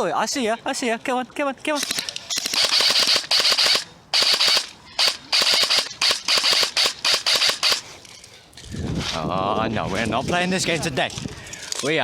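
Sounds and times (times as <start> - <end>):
airsoft rifle full-auto bursts: 1.8 - 7.9.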